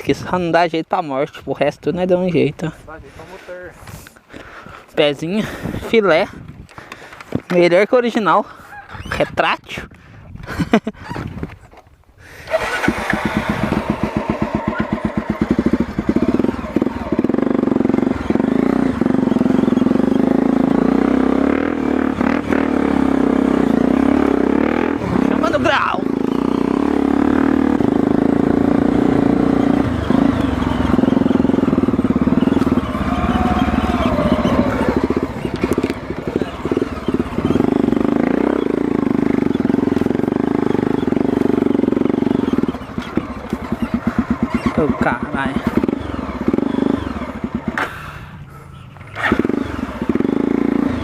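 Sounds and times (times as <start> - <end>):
motorcycle engine running: 12.5 - 51.0.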